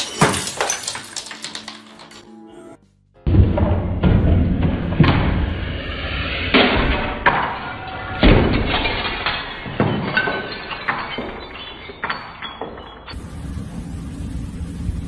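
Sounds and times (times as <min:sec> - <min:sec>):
glassy clatter: 0:00.0 - 0:02.2, 0:07.4 - 0:13.2
sharp crashes and knocks: 0:06.4 - 0:12.9.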